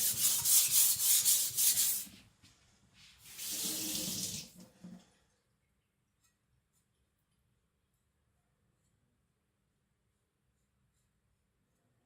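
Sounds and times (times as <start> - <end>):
running water: 3.2 - 5.0.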